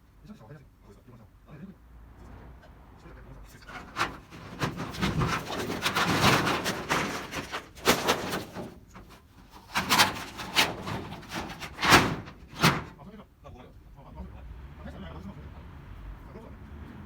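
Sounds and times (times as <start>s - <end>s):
metal roofing clattering: 3.6s - 13.0s
sharp metal bangs: 3.7s - 13.0s.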